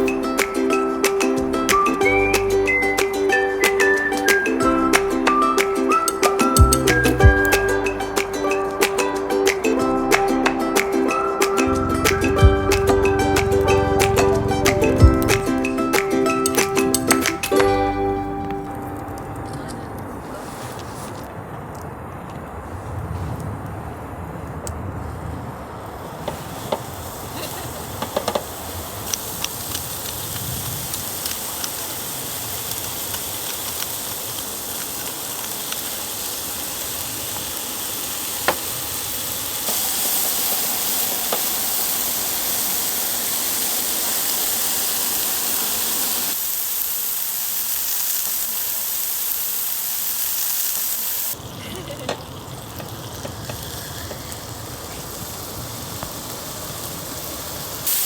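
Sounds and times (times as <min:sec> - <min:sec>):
food sizzling on gas burner: 0:00.0 - 0:19.7, 0:26.0 - 0:58.0.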